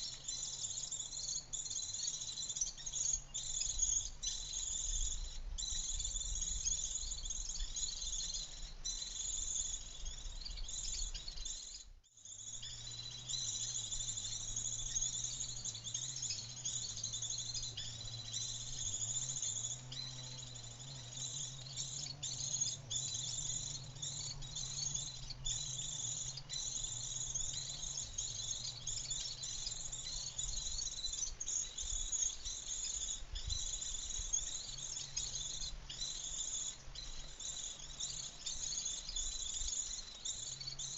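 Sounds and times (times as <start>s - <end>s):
insects chirring: 0.0s - 40.9s
faint low hum: 12.4s - 31.0s.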